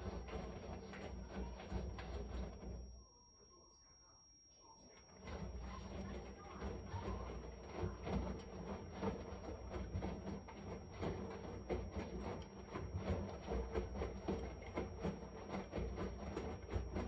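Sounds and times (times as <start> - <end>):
washing machine rumbling: 0.0 - 3.1, 4.9 - 17.0
thin high whine: 0.0 - 17.0.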